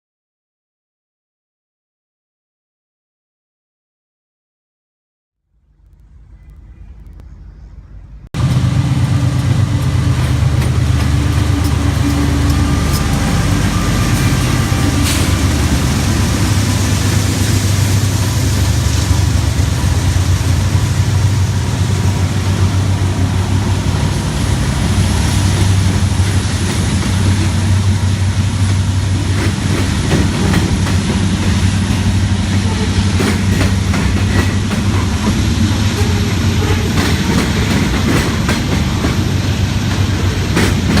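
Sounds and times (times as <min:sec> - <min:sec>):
diesel locomotives rumbling past: 0:05.6 - 0:41.0.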